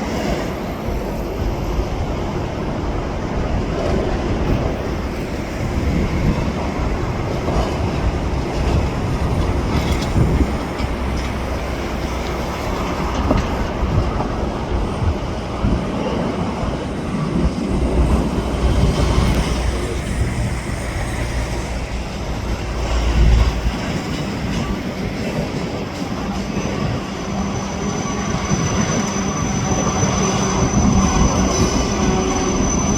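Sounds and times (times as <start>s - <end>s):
deep low train rumble: 0.0s - 32.9s
train wheels clacking over rail joints: 3.7s - 16.1s, 17.4s - 32.3s.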